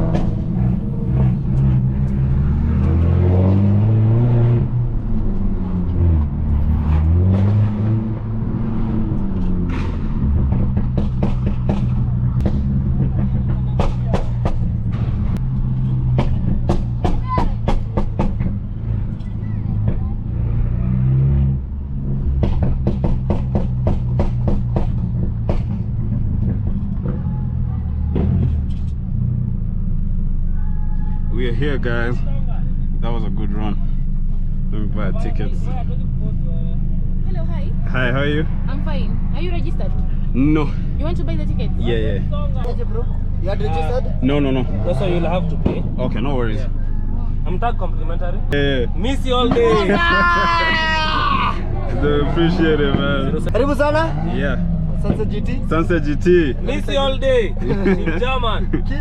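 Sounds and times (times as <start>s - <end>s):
exhaust popping: 0.0s - 29.7s, 48.4s - 59.0s
car engine accelerating: 0.0s - 59.0s
sharp exhaust pops: 9.2s - 18.6s, 22.0s - 29.1s, 54.8s - 55.6s.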